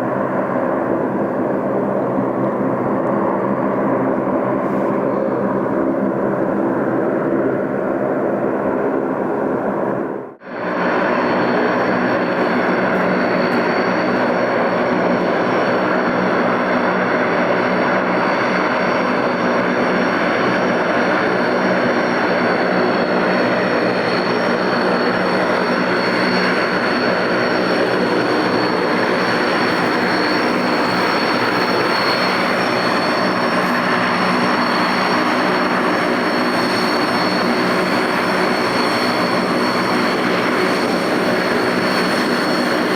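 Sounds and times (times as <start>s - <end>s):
turboprop engines running: 0.0s - 42.9s
high engine whine: 8.7s - 42.9s.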